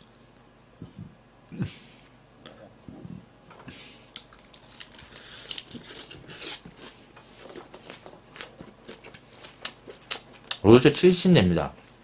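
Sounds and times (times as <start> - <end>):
person chewing crunchy food: 4.1 - 10.6.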